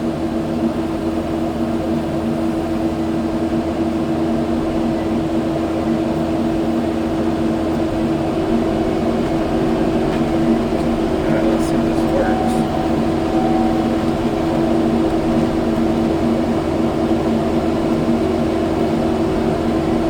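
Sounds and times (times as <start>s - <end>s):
diesel engine droning: 4.5s - 20.0s.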